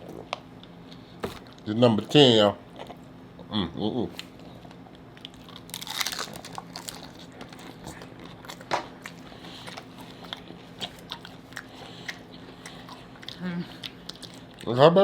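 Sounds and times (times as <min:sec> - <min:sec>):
crunching taco shell: 0:05.1 - 0:14.7.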